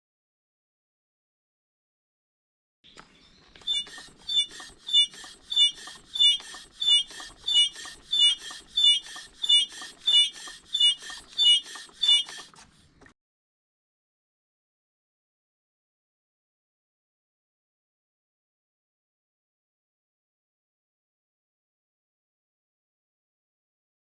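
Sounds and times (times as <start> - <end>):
air shock squeaking: 3.6 - 12.7.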